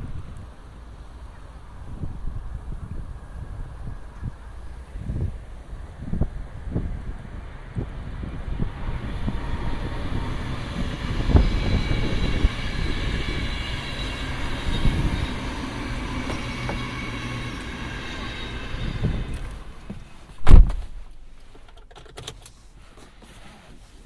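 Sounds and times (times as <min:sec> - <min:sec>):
faint high whine: 0:00.0 - 0:20.6
road and tyre rumble: 0:00.0 - 0:24.0
car thumps: 0:19.0 - 0:21.1.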